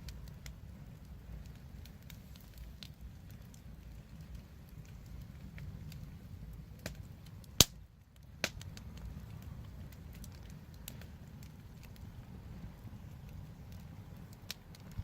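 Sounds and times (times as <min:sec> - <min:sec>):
wood fire crackling: 0:00.0 - 0:15.0
fire popping sharply: 0:06.8 - 0:12.3.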